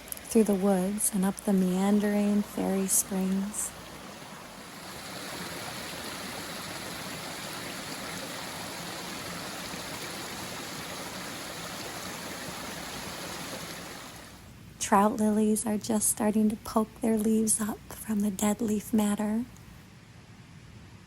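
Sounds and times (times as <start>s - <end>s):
stream water running over rocks: 0.0s - 14.4s.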